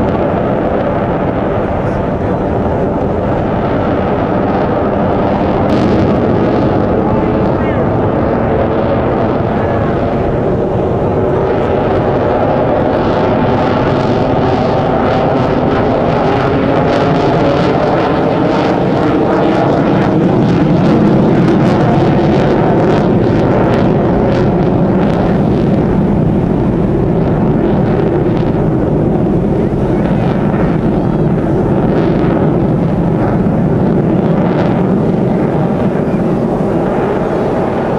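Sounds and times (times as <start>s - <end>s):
military aircraft flying by: 0.0s - 37.9s.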